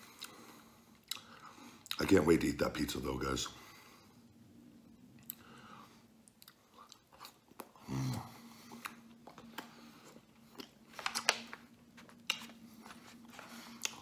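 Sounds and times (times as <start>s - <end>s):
man chewing: 0.0s - 2.0s, 5.1s - 14.0s.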